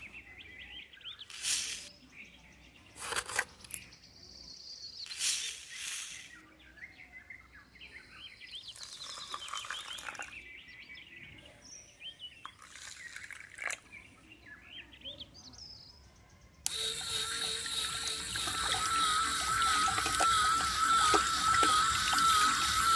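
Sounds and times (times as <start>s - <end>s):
small birds chirping: 0.0s - 22.9s
rustling hiss: 1.3s - 1.9s.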